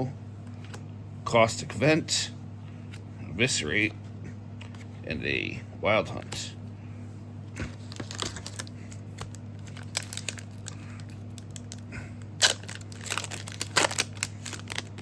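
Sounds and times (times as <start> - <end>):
low electrical hum: 0.0 - 15.0
wrapper tearing and crinkling: 7.8 - 11.8, 12.4 - 15.0.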